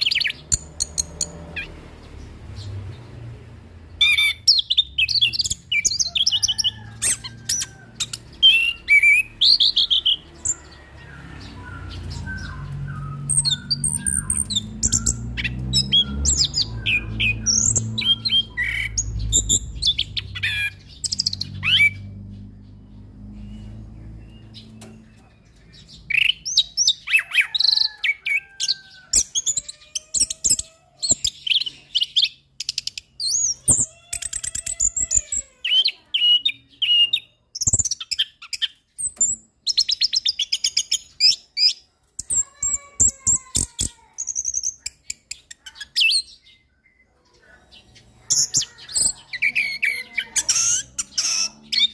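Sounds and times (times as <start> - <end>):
low rumble: 10.8 - 25.6.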